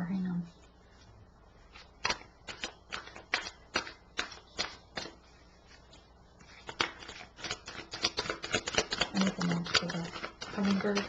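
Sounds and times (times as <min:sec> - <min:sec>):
cards snapping while shuffled: 0:01.7 - 0:05.2, 0:06.6 - 0:11.0.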